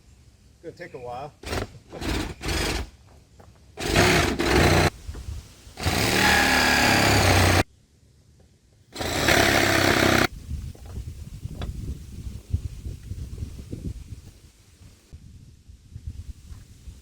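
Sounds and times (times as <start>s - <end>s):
electric jigsaw cutting metal: 1.4s - 2.9s, 3.8s - 4.9s, 5.8s - 7.6s, 9.0s - 10.3s.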